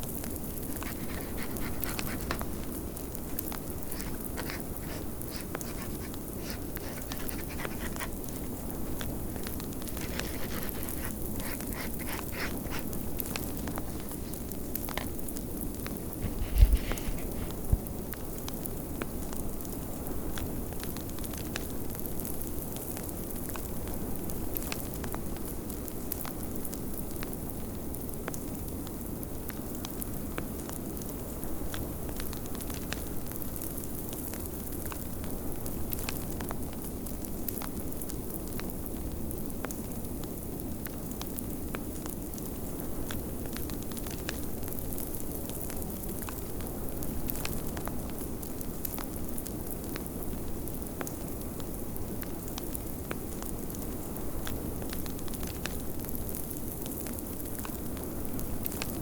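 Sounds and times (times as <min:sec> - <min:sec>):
fireplace crackling and popping: 0:00.0 - 0:17.2.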